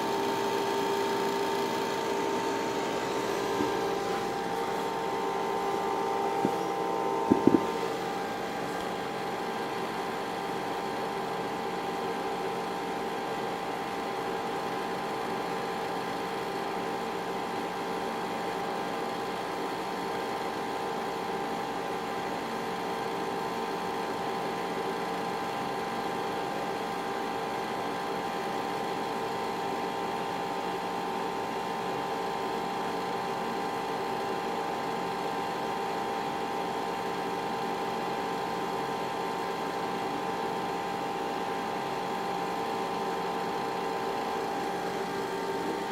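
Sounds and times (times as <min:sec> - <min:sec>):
steady whine: 0:00.0 - 0:11.4
cooling fans whirring: 0:00.0 - 0:45.9.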